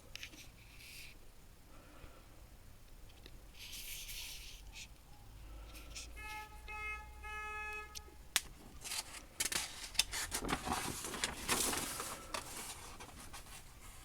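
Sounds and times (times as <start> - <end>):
paper sheets rustling: 8.7 - 14.0.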